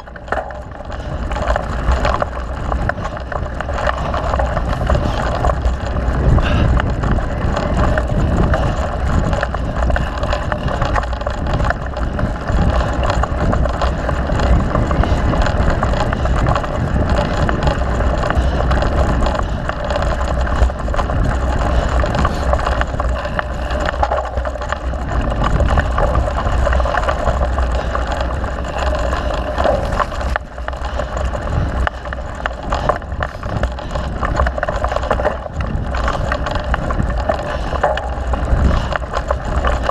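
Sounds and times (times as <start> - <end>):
mountain bike rattling over dirt: 0.0 - 39.9
wind buffeting microphone: 0.0 - 39.9.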